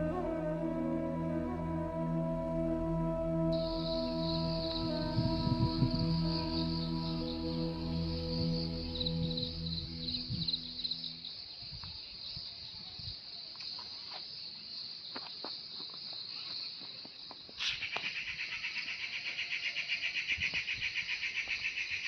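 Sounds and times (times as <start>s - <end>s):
pulsing insect call: 0.0s - 11.5s
insects chirring: 3.6s - 18.9s.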